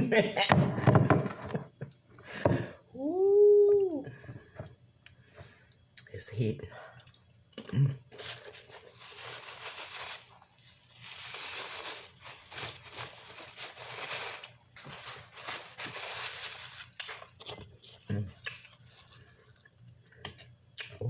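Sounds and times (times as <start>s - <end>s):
person humming: 2.6s - 4.3s
food crinkling and crunching: 6.9s - 21.0s.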